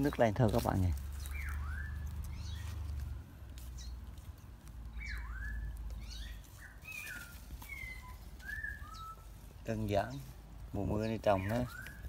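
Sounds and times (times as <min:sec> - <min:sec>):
birds whistling calls: 0:00.0 - 0:02.8, 0:04.9 - 0:10.2, 0:10.9 - 0:12.0.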